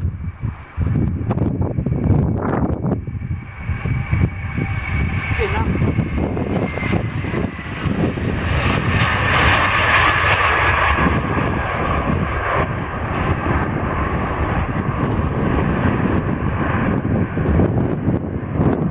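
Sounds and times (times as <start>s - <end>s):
airliner engines passing: 0.0s - 18.9s.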